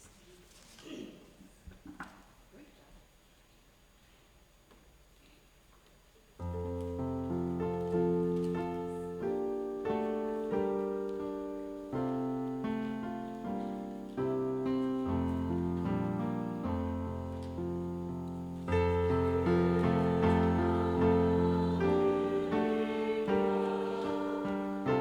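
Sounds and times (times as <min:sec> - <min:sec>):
piano playing slow chords: 0:06.4 - 0:25.0.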